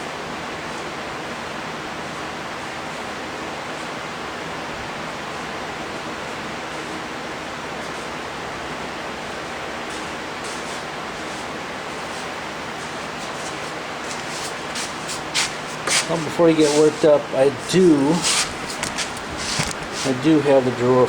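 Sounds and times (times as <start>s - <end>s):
steady rushing hiss: 5.1s - 21.0s.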